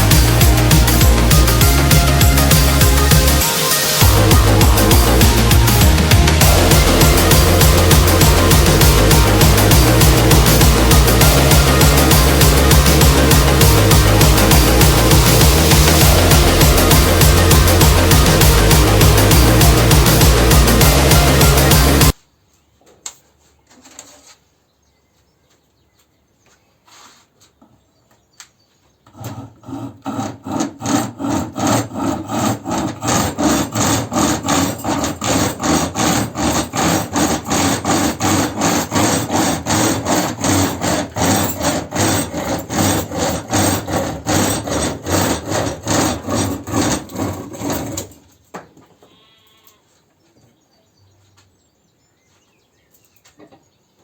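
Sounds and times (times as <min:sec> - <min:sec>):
hand saw chain cutting wood: 0:00.0 - 0:22.2, 0:29.1 - 0:48.5.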